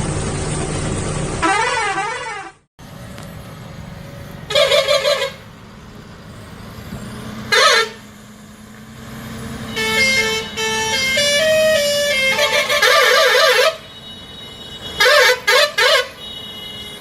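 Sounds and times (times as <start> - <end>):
low engine hum: 0.0 - 13.0
horn-like toots: 1.4 - 2.6, 4.5 - 5.4, 7.5 - 8.1, 9.6 - 13.9.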